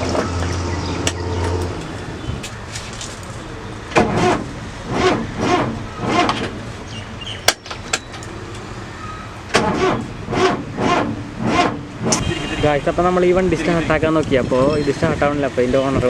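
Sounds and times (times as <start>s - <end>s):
engine starter cranking: 3.9s - 6.6s, 9.5s - 12.2s.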